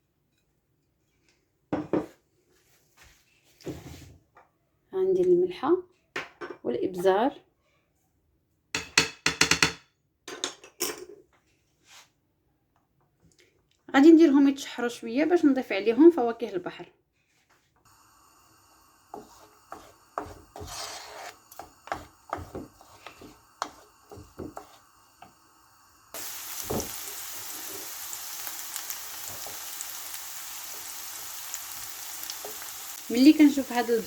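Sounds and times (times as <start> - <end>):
onions frying in oil: 17.9 - 34.0
spoon scraping in a pan: 18.4 - 34.0.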